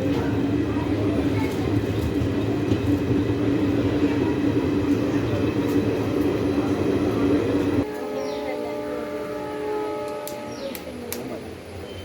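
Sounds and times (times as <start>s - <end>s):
train rumbling along track: 0.0s - 12.0s.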